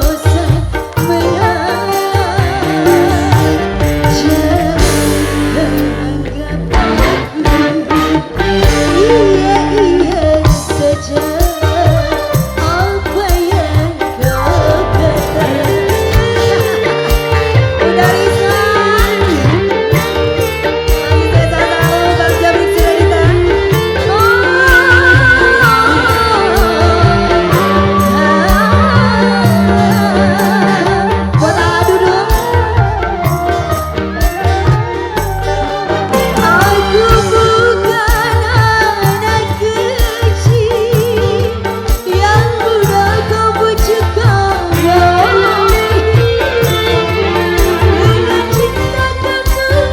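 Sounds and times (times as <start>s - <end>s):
bass: 0.0s - 49.9s
gliding melodic lead line: 0.0s - 49.9s
hand drum rhythm: 0.0s - 49.9s
live band music: 0.0s - 49.9s.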